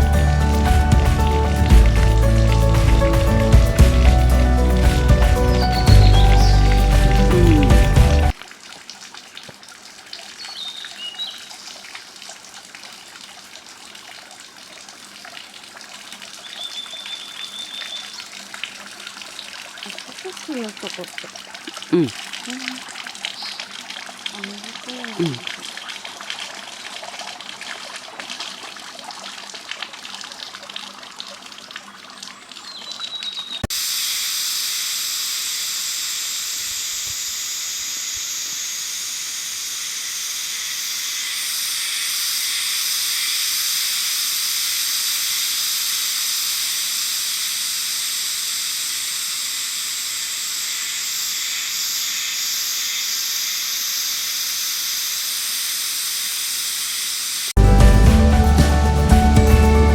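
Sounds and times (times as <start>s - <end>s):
rushing water: 0.0s - 34.0s.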